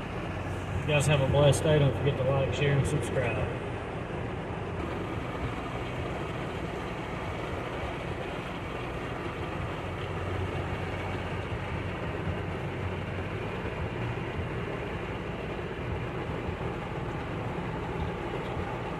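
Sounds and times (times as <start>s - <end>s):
low rumble of vehicles: 0.0s - 18.9s
heavy rain downpour: 4.8s - 18.9s.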